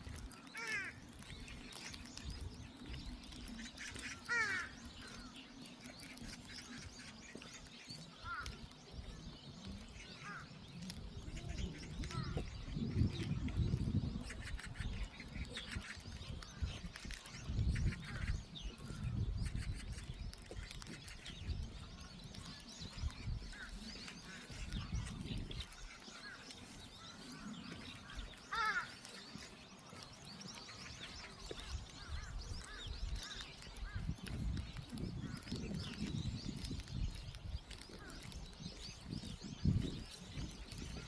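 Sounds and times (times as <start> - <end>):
birds chirping and calling: 0.0 - 41.0.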